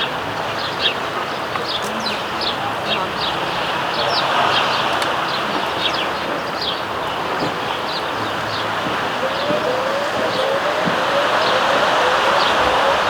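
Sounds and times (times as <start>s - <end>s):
sparrows chirping: 0.0s - 13.0s
traffic hum: 0.0s - 13.0s
low engine note rising: 7.8s - 13.0s.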